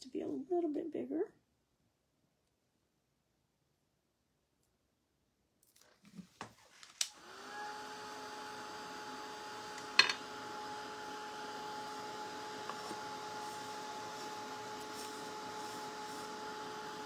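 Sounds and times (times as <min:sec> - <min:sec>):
heat gun fan whirring: 0:07.0 - 0:17.0.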